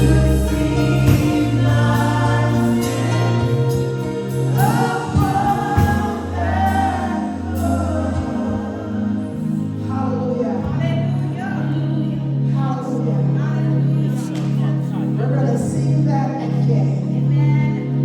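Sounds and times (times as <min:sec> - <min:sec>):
band with bass and beat: 0:00.0 - 0:08.4
choir singing gospel: 0:00.0 - 0:18.0.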